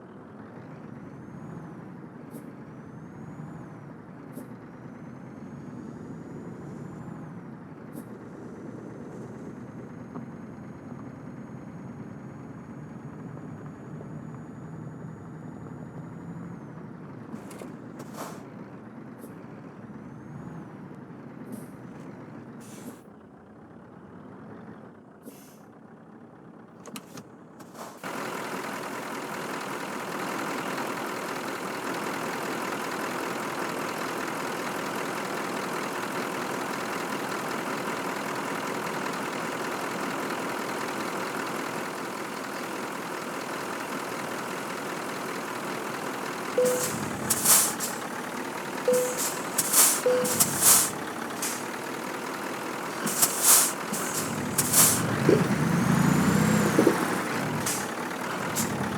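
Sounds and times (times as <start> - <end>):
truck engine running: 0.0 - 58.9
short sharp sounds: 46.6 - 48.0, 48.9 - 51.6.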